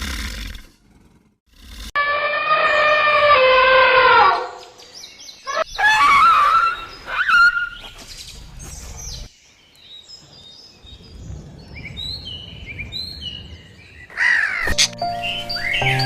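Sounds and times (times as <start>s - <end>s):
small birds chirping: 4.6s - 16.0s.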